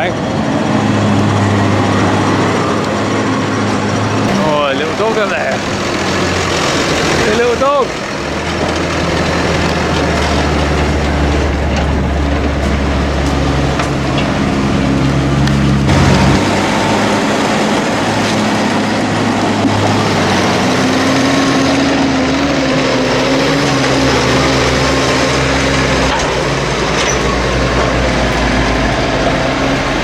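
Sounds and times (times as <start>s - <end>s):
diesel farm machinery engines: 0.0s - 30.0s
steady engine tone: 0.0s - 30.0s.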